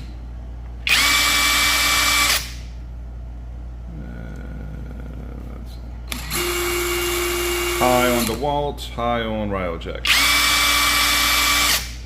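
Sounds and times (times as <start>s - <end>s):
impact drill whining: 0.8s - 2.6s, 6.1s - 8.4s, 10.1s - 12.0s
another drill starting: 6.1s - 8.4s, 10.1s - 12.0s.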